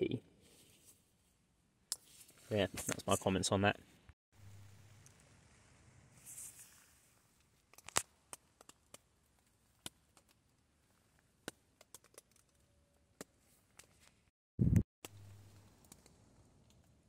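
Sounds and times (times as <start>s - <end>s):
faint sharp clicks and crackles: 7.4s - 14.2s, 15.0s - 17.0s.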